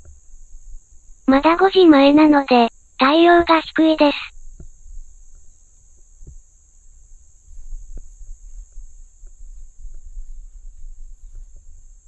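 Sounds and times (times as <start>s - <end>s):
crickets chirring: 0.1s - 3.3s.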